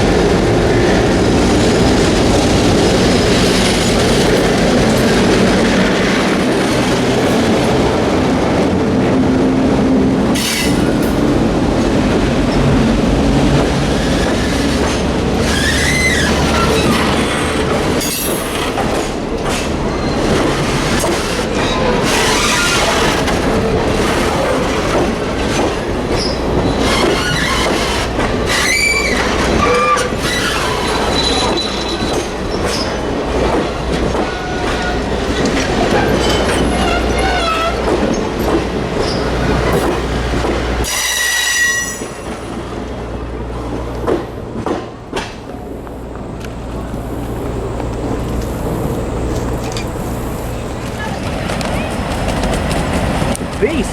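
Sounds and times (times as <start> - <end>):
train wheels clattering: 10.3 - 53.9
train wheels squealing: 15.4 - 18.7, 26.2 - 33.0, 40.8 - 42.5.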